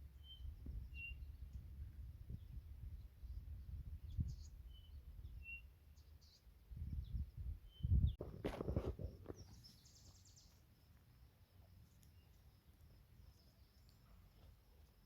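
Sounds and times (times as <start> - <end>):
faint bird chirps: 0.0 - 14.9
low thuds and rustles: 8.0 - 9.5.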